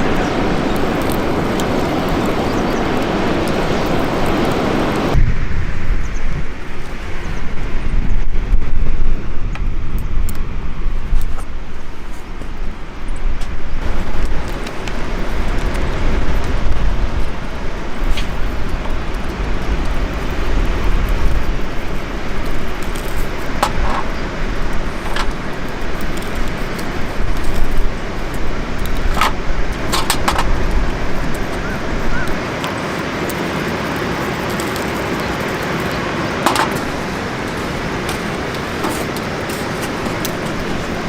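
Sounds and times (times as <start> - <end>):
rushing outdoor noise with low rumble: 0.0 - 41.0
sharp clicks or cracks: 25.0 - 30.6, 31.2 - 40.8.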